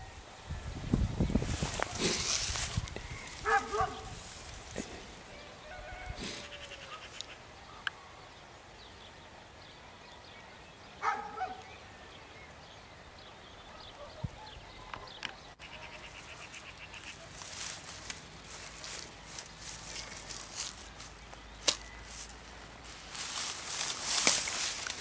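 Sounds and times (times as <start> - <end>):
animal call: 5.3 - 7.4.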